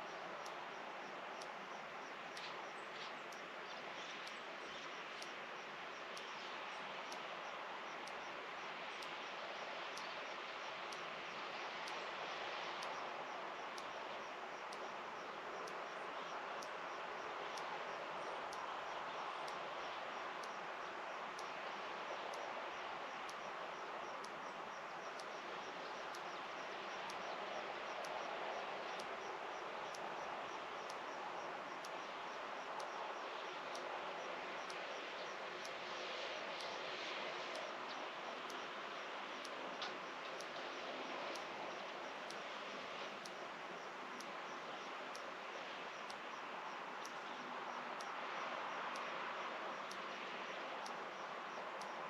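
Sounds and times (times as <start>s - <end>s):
steady even hiss: 0.0s - 52.0s
faint high tick: 0.4s - 0.8s, 2.3s - 5.4s, 9.0s - 12.1s, 12.7s - 14.1s, 17.5s - 17.8s, 18.5s - 20.6s, 27.0s - 28.3s, 39.4s - 42.4s, 43.1s - 43.4s, 46.0s - 46.2s, 47.0s - 49.2s, 50.8s - 51.0s
sharp ticks: 0.4s - 12.1s, 12.7s - 35.8s, 37.5s - 52.0s.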